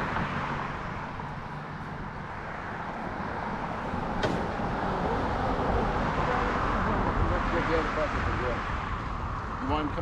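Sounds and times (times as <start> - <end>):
engine rumbling: 0.0 - 10.0.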